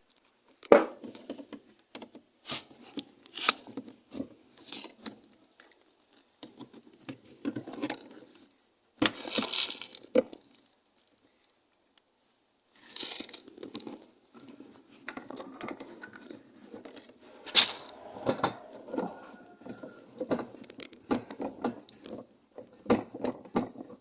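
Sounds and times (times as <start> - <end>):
rustling and scraping: 12.8 - 24.0.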